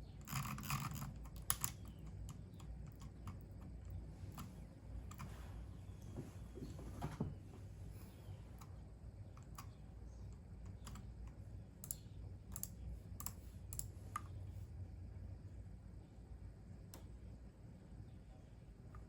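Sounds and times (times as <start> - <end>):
keyboard typing: 9.4 - 14.3.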